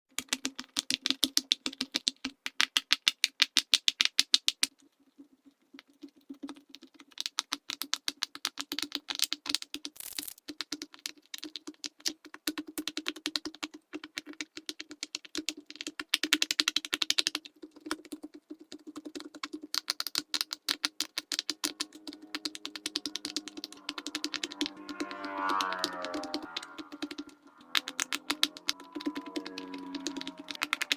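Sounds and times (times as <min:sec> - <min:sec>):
fidget toy bubbles popping: 0:00.1 - 0:30.9
low hum: 0:21.6 - 0:30.9.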